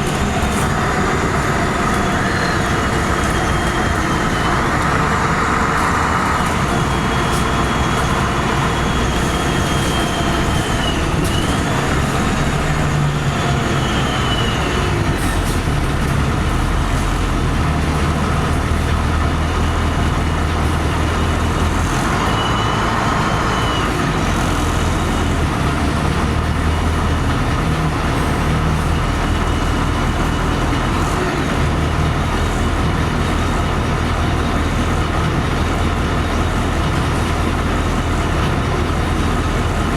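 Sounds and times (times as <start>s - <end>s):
bus engine hum: 0.0s - 39.9s.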